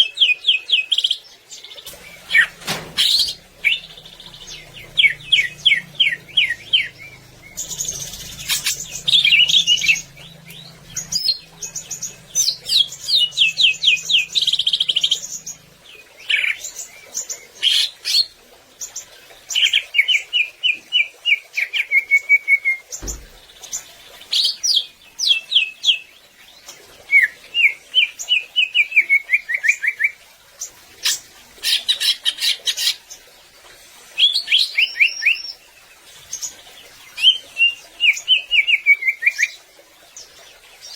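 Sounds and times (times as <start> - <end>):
low hum: 1.9 - 16.2
bird singing sharp chirps and trills: 2.1 - 18.2
dull thump: 23.0 - 23.6.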